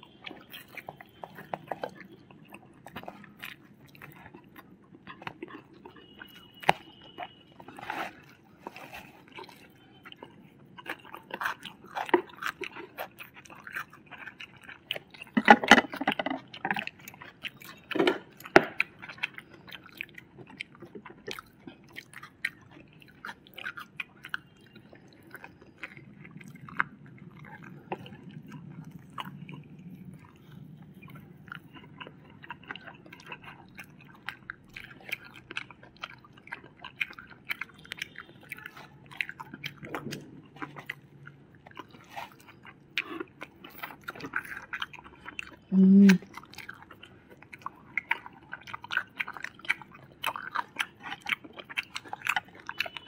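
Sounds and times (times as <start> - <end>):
people chewing crispy food: 0.0 - 53.0
wet mouth clicks: 45.7 - 46.4.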